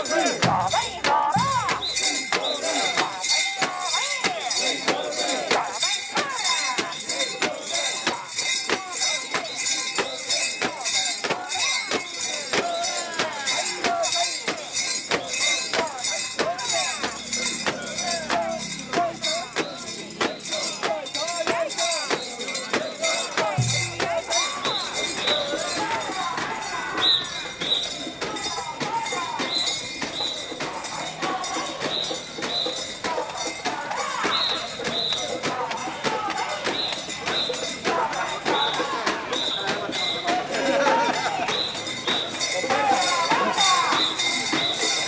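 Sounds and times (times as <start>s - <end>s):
bells jingling rhythmically: 0.0s - 45.0s
people chanting: 0.0s - 45.0s.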